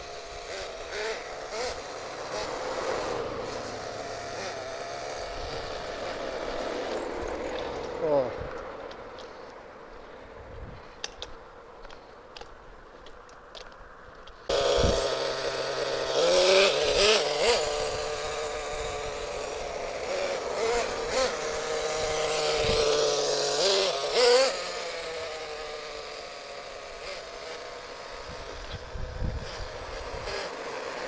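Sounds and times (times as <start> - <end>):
small nitro engine revving: 0.0 - 8.5, 14.4 - 31.0.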